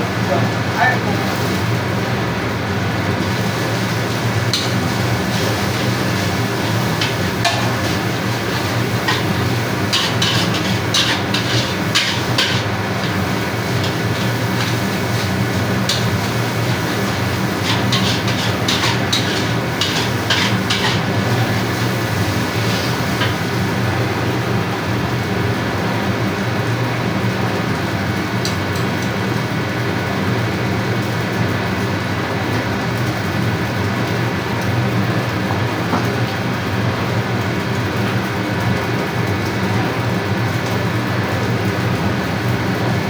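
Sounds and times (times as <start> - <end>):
metal spatula scraping a wok: 4.6 - 23.4.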